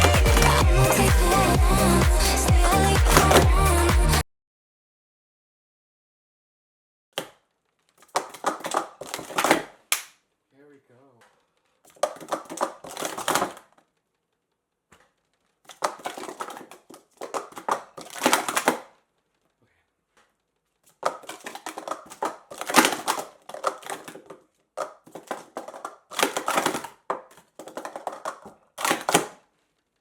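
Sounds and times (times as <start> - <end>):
plastic cups clattering: 8.0 - 9.7, 11.9 - 13.7, 15.7 - 18.8, 21.0 - 29.4.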